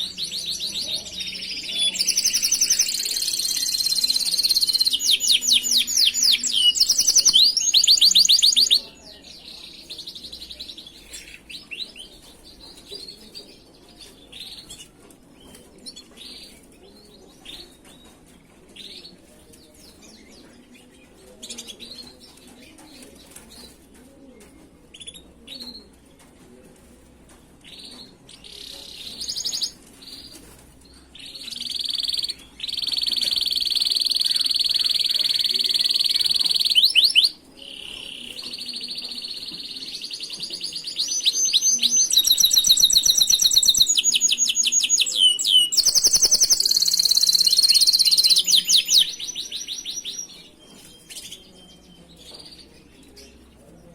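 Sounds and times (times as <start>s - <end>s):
canary singing: 0.0s - 9.0s, 31.2s - 53.4s.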